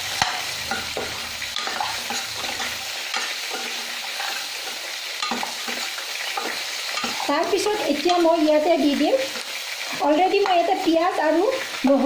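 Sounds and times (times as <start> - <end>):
masala sizzling in a pan: 0.0 - 12.0
spoon clicking against pan: 4.6 - 7.2.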